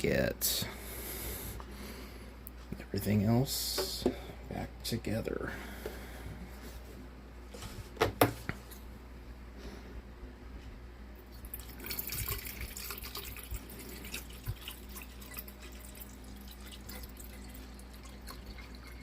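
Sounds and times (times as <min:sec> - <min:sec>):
water trickling and splashing: 0:11.4 - 0:19.0.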